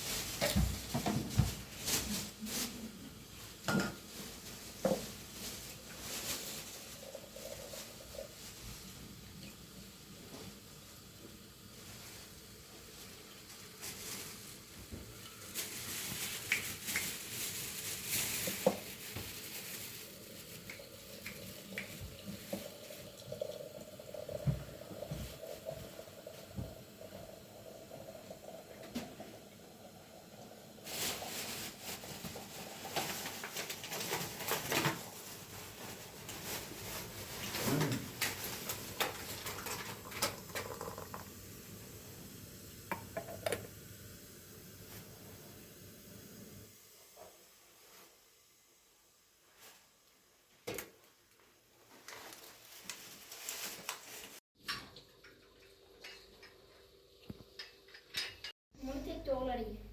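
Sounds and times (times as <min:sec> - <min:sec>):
pots and dishes clinking: 0:03.6 - 0:04.2, 0:15.1 - 0:15.8, 0:54.6 - 0:58.6.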